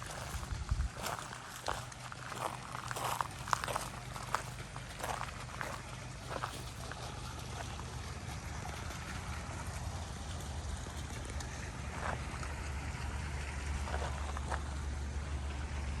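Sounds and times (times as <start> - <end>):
wind rumble on microphone: 0.0 - 1.8.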